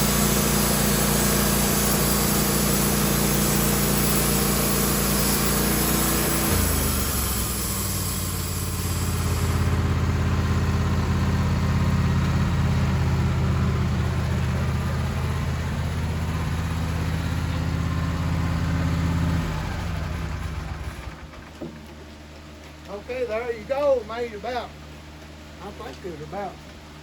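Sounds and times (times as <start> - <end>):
high hiss: 0.0 - 9.8
sawmill engine idling: 0.0 - 27.0.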